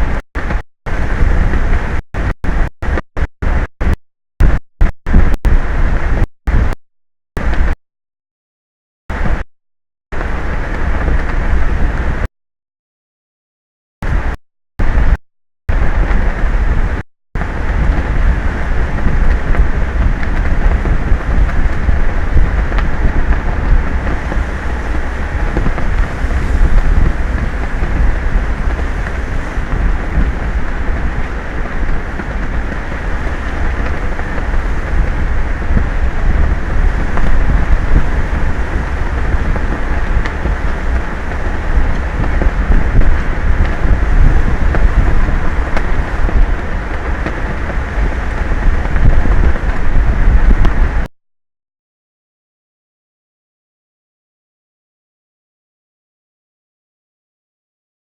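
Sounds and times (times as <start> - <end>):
sea noise: 0.0 - 6.8, 9.1 - 9.4, 10.2 - 12.3, 14.0 - 51.1
wind buffeting microphone: 0.0 - 6.8, 10.2 - 12.3, 14.0 - 51.1.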